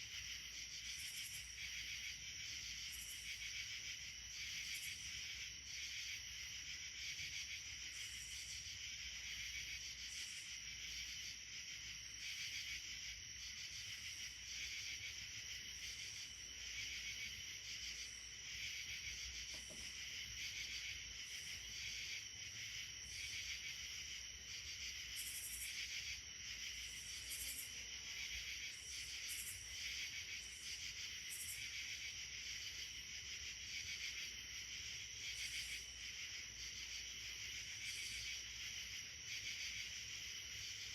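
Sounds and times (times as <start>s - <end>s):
insects chirping: 0.0s - 40.9s.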